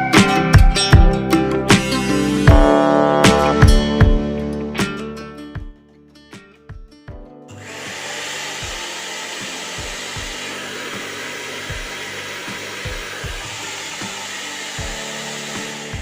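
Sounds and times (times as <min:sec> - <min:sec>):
blender motor whirring: 0:07.5 - 0:16.0.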